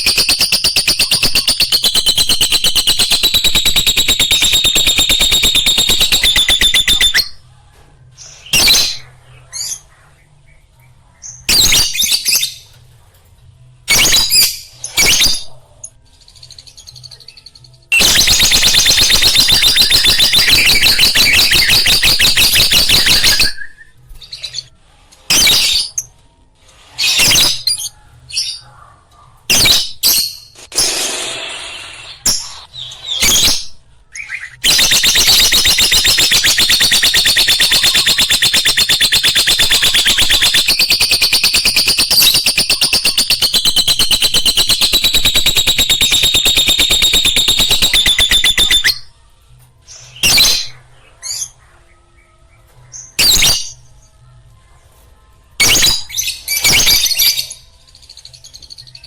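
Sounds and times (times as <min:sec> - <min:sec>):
lovebirds chattering: 0:00.0 - 0:07.4, 0:34.6 - 0:49.0.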